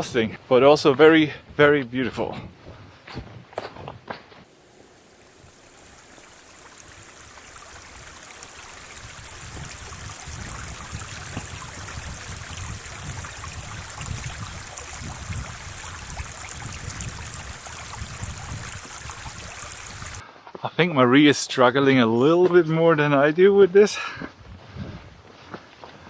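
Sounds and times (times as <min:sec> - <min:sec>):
wind rumbling on microphone: 0:02.1 - 0:04.0, 0:06.8 - 0:20.2, 0:24.4 - 0:25.4
sea water rushing at shore: 0:04.5 - 0:20.2.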